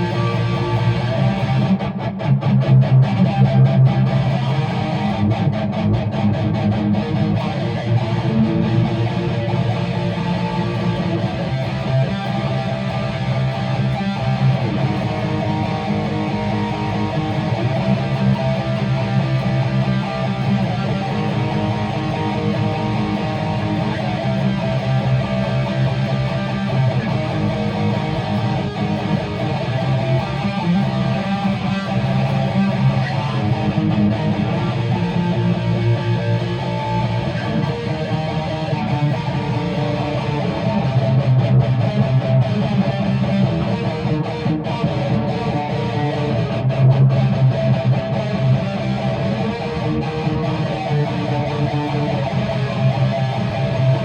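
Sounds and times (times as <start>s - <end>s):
guitar strumming chords: 0.0s - 54.0s.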